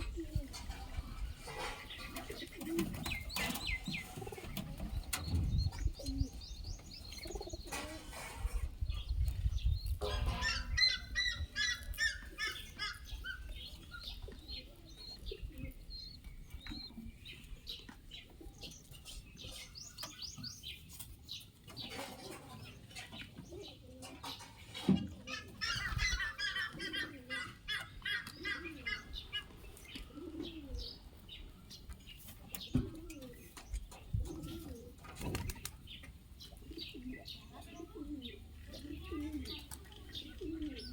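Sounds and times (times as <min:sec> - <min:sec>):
pigeons flapping wings: 0:35.1 - 0:35.8.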